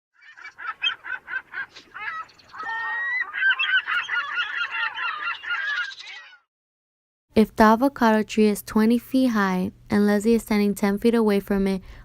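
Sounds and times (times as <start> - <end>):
birds calling: 0.1 - 6.5.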